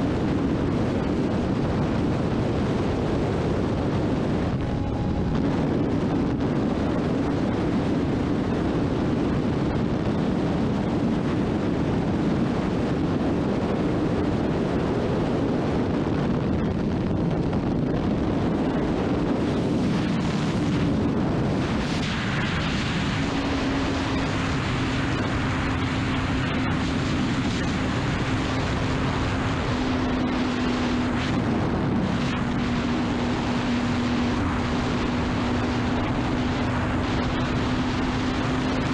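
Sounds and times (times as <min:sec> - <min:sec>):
wind rush: 0:00.0 - 0:38.9.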